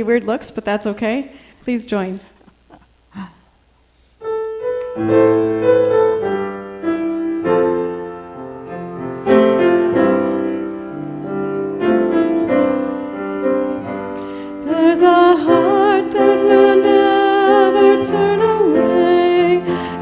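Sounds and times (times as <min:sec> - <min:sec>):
piano chords: 0:04.2 - 0:20.0.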